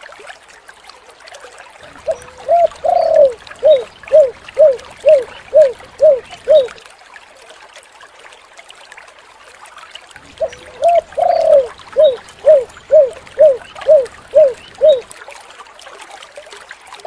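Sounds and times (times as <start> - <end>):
dove cooing: 1.9 - 6.8, 10.4 - 15.1.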